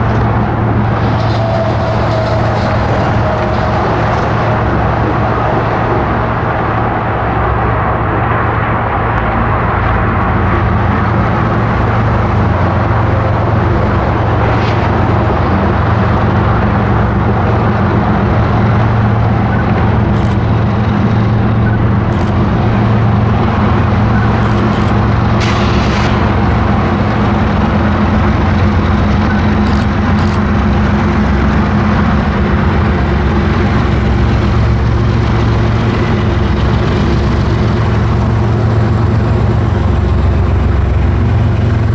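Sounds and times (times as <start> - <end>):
freight train engine drone: 0.0 - 41.9
train rolling noise: 0.0 - 41.9.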